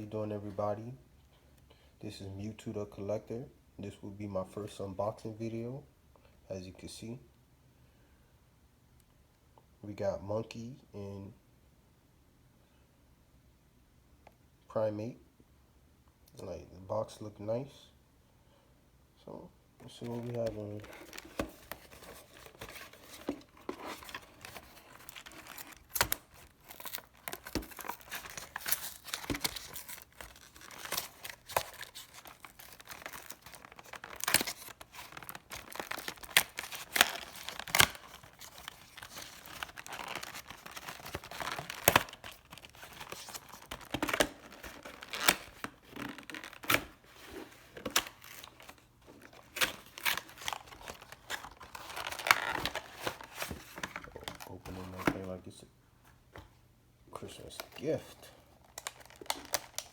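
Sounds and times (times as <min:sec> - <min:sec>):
packaging tearing and crinkling: 0:20.0 - 0:54.4, 0:58.6 - 0:59.9.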